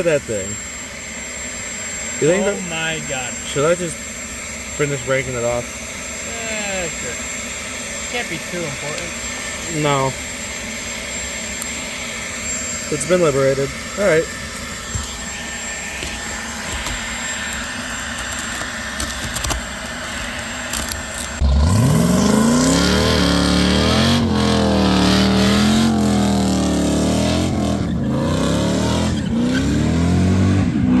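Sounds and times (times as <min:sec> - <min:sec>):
car engine revving: 0:21.3 - 0:31.0.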